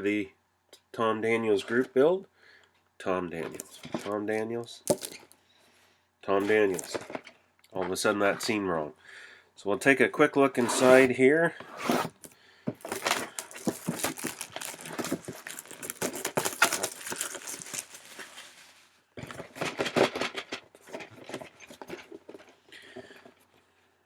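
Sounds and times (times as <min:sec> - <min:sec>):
packaging and plastic crinkling: 0:03.5 - 0:04.2, 0:04.9 - 0:05.4, 0:06.4 - 0:07.3, 0:10.6 - 0:11.1, 0:11.7 - 0:20.2.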